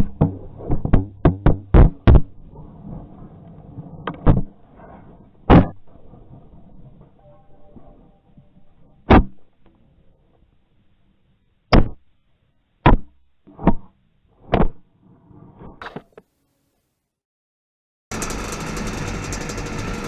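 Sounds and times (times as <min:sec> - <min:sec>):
sharp knocks: 0:00.0 - 0:02.4.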